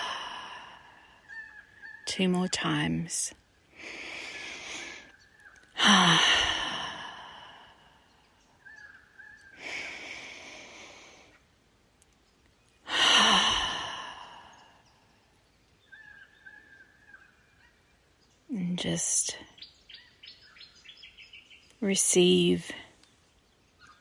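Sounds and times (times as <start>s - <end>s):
woman breathing deeply: 0.0s - 1.3s, 3.7s - 5.2s, 5.8s - 8.2s, 9.6s - 11.4s, 12.9s - 14.9s
faint bird calls: 0.0s - 2.9s, 4.0s - 11.5s, 12.3s - 18.4s.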